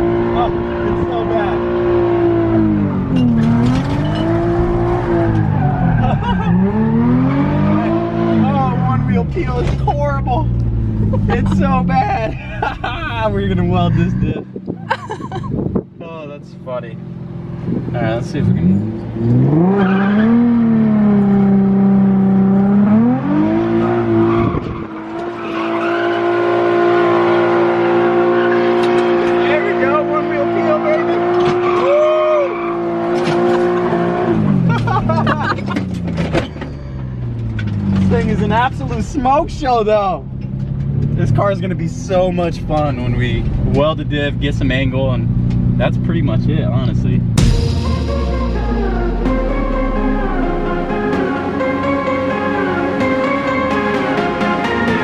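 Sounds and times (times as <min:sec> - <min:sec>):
car engine revving: 0:00.0 - 0:15.9, 0:16.8 - 0:31.8, 0:40.2 - 0:55.0
tyre squealing in a burnout: 0:03.3 - 0:08.7, 0:18.8 - 0:20.8, 0:23.6 - 0:33.9.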